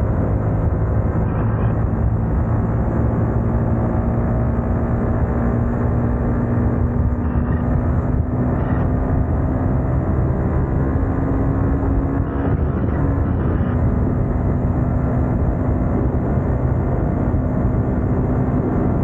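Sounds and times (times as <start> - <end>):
motorcycle engine running: 0.0 - 19.0
wind on microphone: 5.2 - 19.0.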